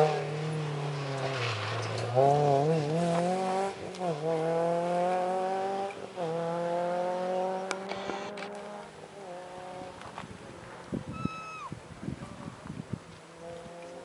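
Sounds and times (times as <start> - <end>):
racing car engine accelerating: 0.0 - 10.0, 13.2 - 14.0.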